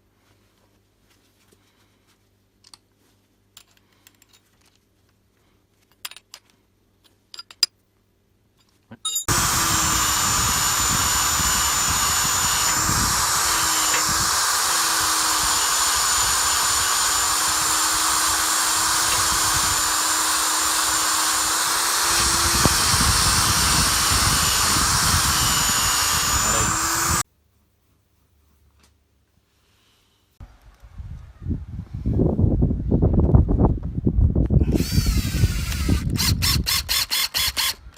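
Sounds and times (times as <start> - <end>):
power tool running: 9.3 - 27.2, 34.6 - 37.8.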